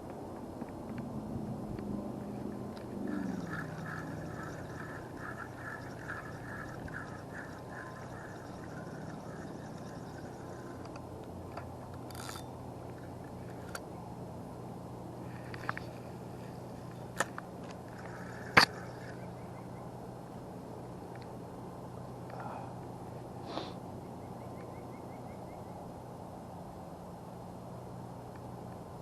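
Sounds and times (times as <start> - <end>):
bird chirping: 3.1 - 11.0.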